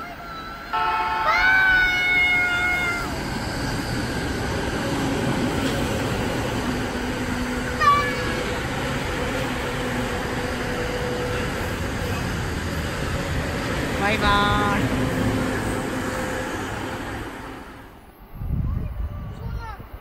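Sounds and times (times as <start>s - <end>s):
train rumbling on tracks: 0.0s - 20.0s
train horn: 0.7s - 2.9s.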